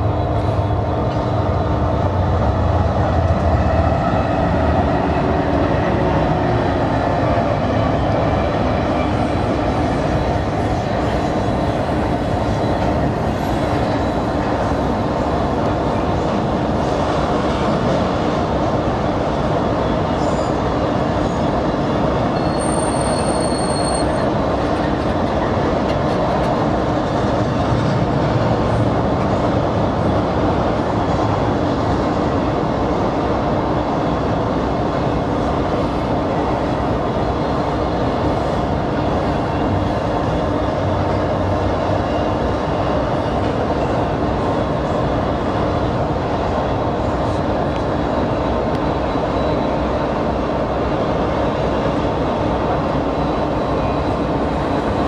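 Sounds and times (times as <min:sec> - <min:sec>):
train wheels running on rail: 0:00.0 - 0:55.0
high-pitched wheel squeal: 0:22.3 - 0:24.4.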